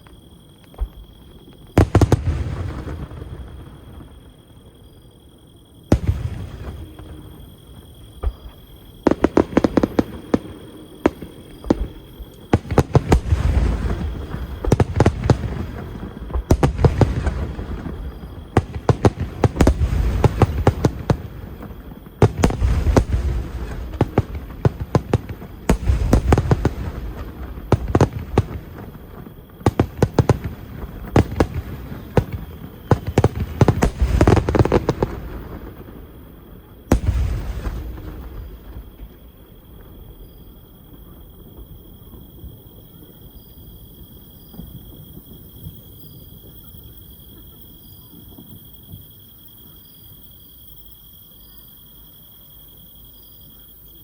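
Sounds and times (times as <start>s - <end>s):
fireworks crackling pops: 0.0s - 4.2s, 5.9s - 36.0s, 36.9s - 40.4s.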